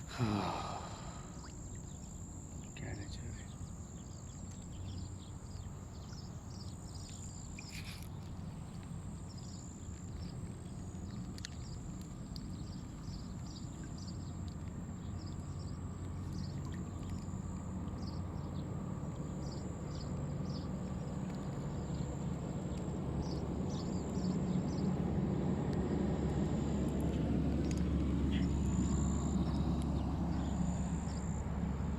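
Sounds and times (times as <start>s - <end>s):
low engine-like rumble: 0.0s - 31.9s.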